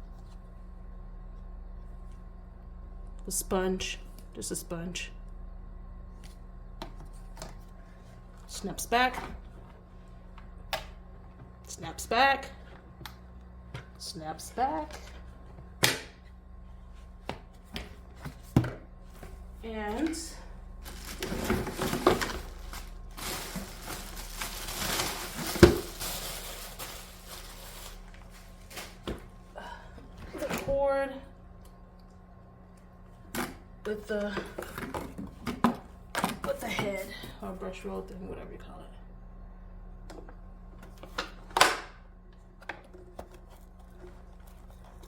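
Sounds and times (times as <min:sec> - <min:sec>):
rustling plastic parts and packaging: 0:20.0 - 0:29.4, 0:42.8 - 0:45.0.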